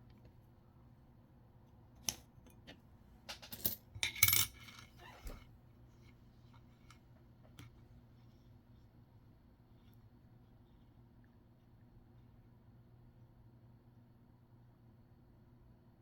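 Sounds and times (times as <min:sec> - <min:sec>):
coins clinking: 0:03.4 - 0:04.7.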